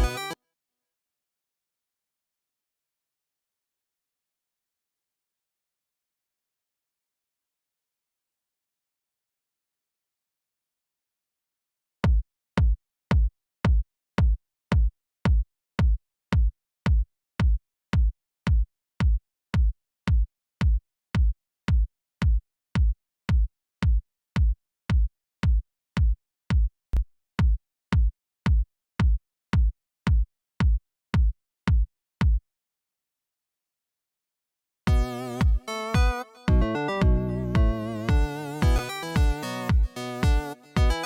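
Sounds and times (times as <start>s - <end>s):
electronic kick drum loop: 0.0s - 0.4s, 34.9s - 41.0s.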